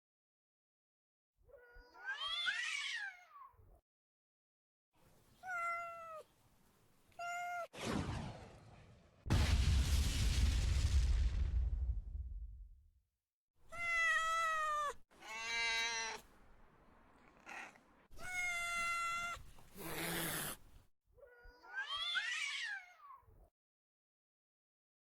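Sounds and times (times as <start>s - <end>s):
cat meowing: 1.5s - 3.8s, 5.4s - 6.3s, 7.2s - 7.8s, 13.7s - 16.3s, 17.2s - 20.6s, 21.2s - 23.4s
loud boom: 7.8s - 13.0s.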